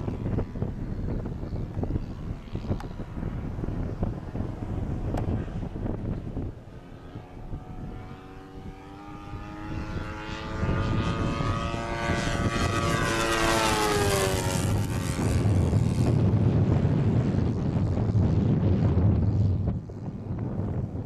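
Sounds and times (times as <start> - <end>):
model plane engine flyby: 0.0 - 21.0
wind rumbling on microphone: 0.0 - 21.0.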